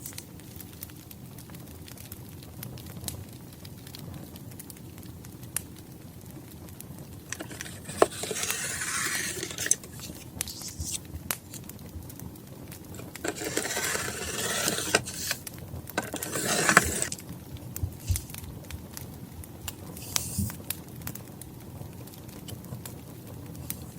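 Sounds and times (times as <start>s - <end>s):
crackling wood fire with pops: 0.0s - 7.4s, 9.9s - 13.2s, 15.4s - 16.0s, 17.1s - 23.9s
paper rustling: 7.2s - 11.6s, 12.9s - 17.2s, 20.0s - 20.6s.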